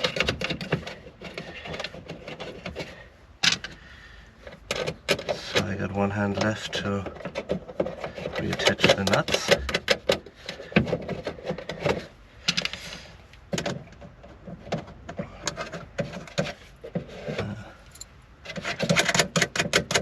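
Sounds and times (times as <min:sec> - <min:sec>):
small metal parts clinking: 0:17.7 - 0:18.2.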